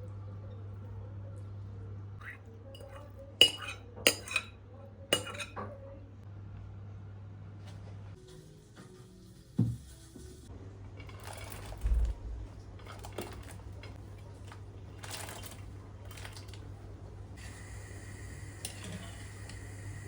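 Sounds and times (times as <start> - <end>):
kitchen utensils clicking and scraping: 2.2 - 5.7.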